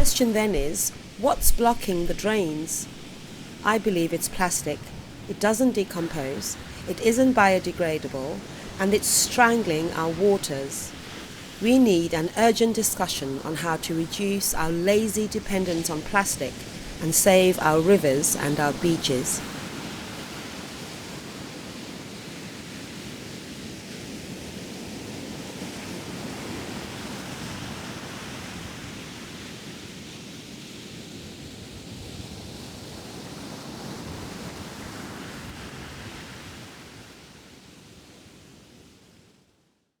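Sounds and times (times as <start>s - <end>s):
ocean surf washing onto beach: 0.0s - 30.0s.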